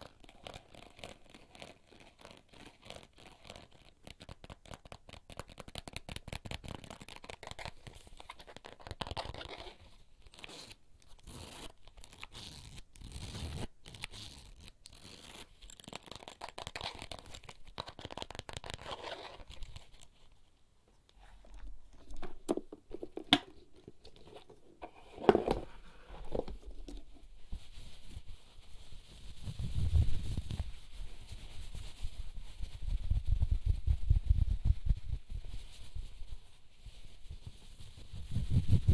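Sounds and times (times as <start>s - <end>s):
fingertips scratching and crinkling: 0.0s - 20.4s.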